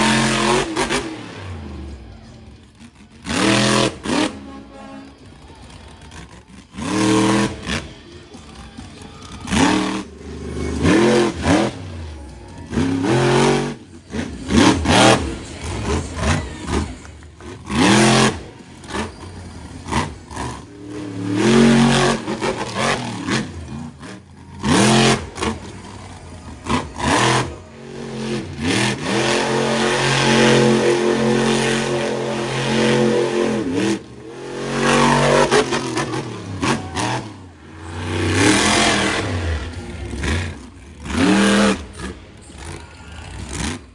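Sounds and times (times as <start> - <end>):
truck engine revving: 0.0 - 43.9.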